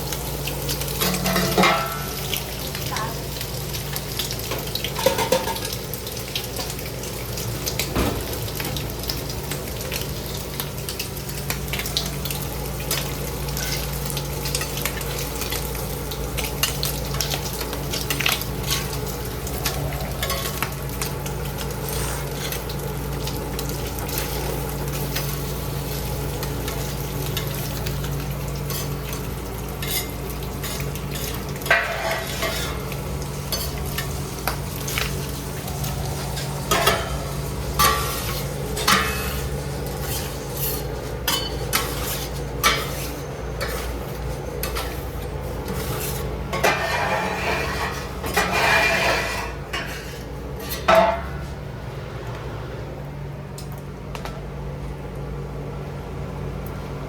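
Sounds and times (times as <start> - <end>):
food sizzling on a griddle: 0.0 - 51.4
utensils clattering: 1.0 - 2.2
metal utensils scraping: 29.8 - 32.8, 37.8 - 51.2.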